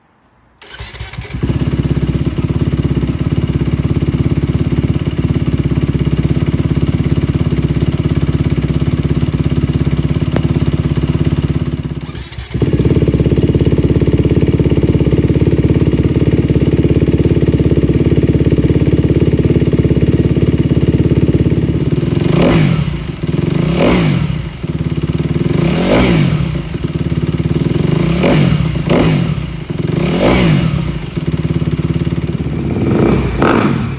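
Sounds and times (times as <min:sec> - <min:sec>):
dirt bike engine idling: 0:00.6 - 0:33.9
engine throttle blips: 0:21.6 - 0:33.9.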